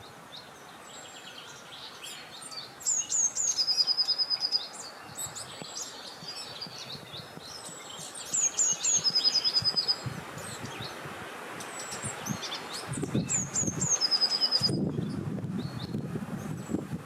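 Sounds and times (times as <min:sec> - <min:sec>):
songbirds chirping: 0:00.0 - 0:17.0
bird trill: 0:01.0 - 0:10.8, 0:11.6 - 0:16.0
wind rushing: 0:09.6 - 0:17.0.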